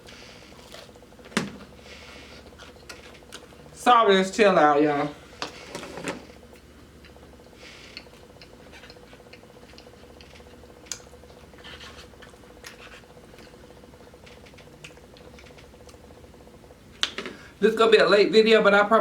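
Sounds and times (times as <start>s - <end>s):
person chewing food: 0.0s - 1.0s, 1.7s - 3.6s, 6.6s - 16.1s
steady faint hum: 0.0s - 19.0s.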